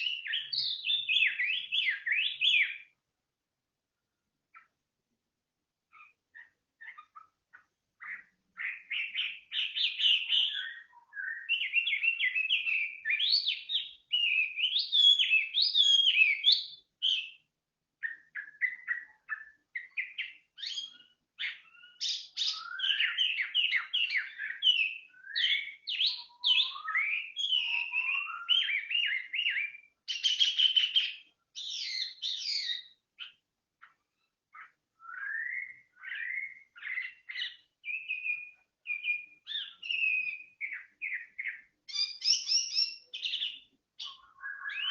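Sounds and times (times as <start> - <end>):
songbird singing: 0.0 - 44.9.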